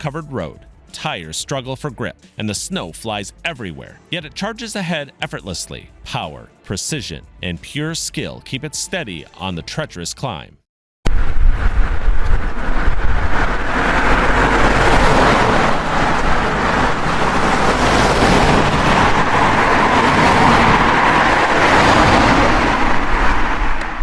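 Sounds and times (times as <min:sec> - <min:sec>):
road noise: 0:11.1 - 0:24.0
heavy truck engine: 0:11.2 - 0:24.0.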